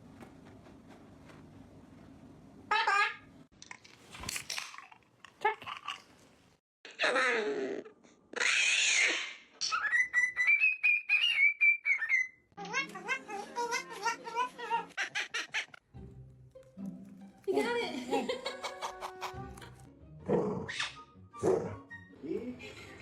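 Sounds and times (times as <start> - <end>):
parrot chattering and screeching: 2.7 - 3.3, 8.4 - 15.8.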